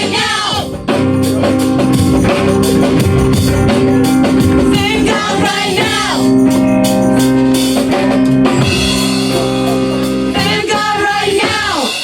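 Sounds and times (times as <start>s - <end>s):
voices singing: 0.0s - 1.1s, 3.5s - 6.8s, 7.9s - 12.0s
organ chords: 0.0s - 11.7s
drum kit: 0.0s - 12.0s.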